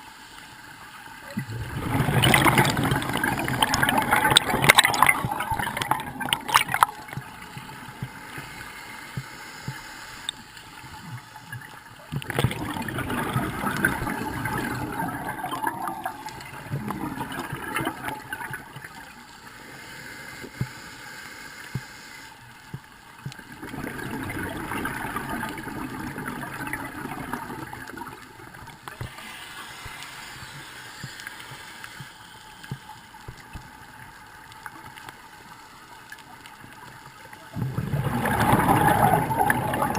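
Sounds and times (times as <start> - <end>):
water gurgling and sloshing: 0.0 - 20.8, 21.7 - 39.9.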